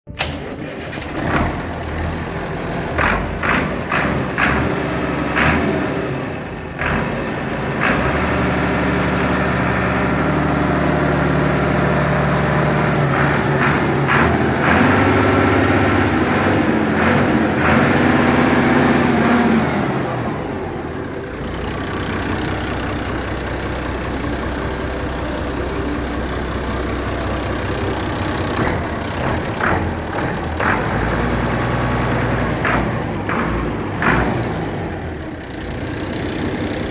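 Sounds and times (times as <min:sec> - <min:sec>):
tractor engine running: 0:00.0 - 0:36.9
sharp knocks and clicks: 0:28.4 - 0:34.8.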